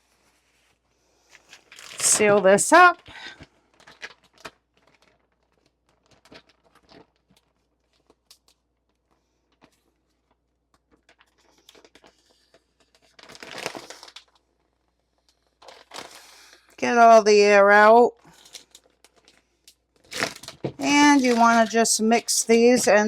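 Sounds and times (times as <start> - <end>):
plastic bag crinkling: 1.3 - 23.0.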